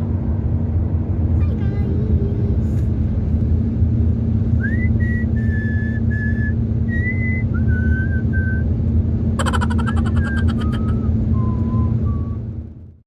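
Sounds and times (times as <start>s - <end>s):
car cabin rumble: 1.4s - 12.9s
person whistling a tune: 4.6s - 8.7s, 10.2s - 12.5s.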